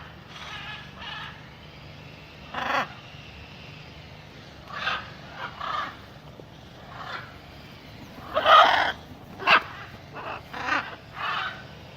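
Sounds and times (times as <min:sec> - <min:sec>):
macaws squawking: 0:06.8 - 0:11.6.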